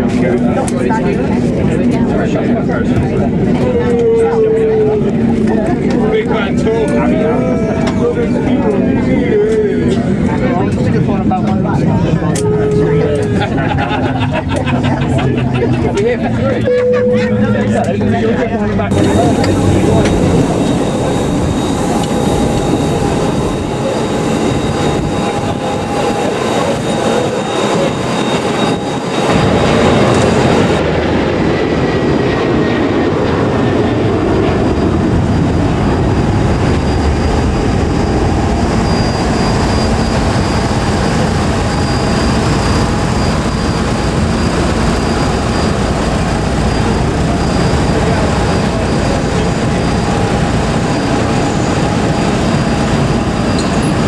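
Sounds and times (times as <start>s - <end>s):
airplane cabin hum: 0.0s - 54.0s
faint thin tone: 18.9s - 30.8s.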